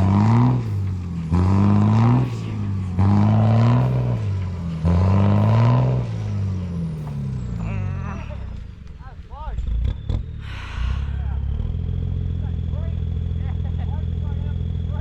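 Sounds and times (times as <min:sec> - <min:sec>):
diesel truck engine revving: 0:00.0 - 0:15.0.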